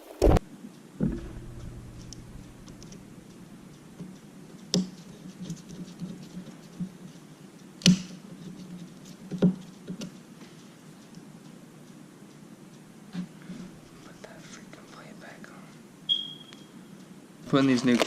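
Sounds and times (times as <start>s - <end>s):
sharp knocks: 1.0s - 3.7s.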